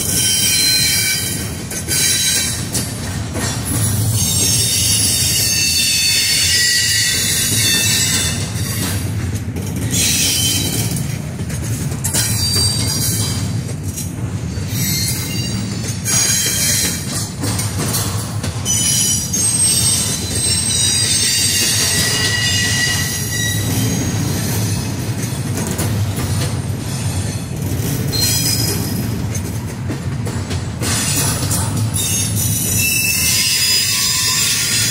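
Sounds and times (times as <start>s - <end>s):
wheel squeals: 0.0s - 2.6s, 4.1s - 9.0s, 12.1s - 13.4s, 14.5s - 17.3s, 18.6s - 24.9s, 28.1s - 29.0s, 31.9s - 34.9s
freight train rumbling past: 0.0s - 34.9s.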